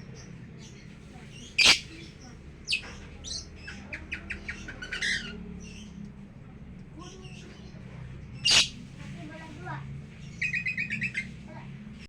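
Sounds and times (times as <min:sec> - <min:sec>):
lovebirds squawking: 0:01.4 - 0:05.4, 0:08.4 - 0:08.8
short bird chirps: 0:08.5 - 0:08.8.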